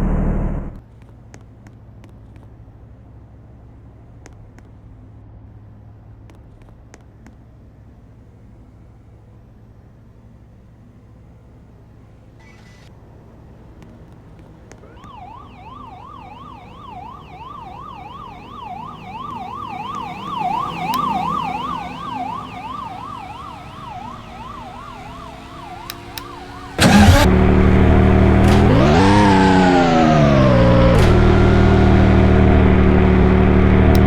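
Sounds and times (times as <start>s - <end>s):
car engine: 0.0s - 0.9s, 7.6s - 34.0s
siren yelping: 14.8s - 34.0s.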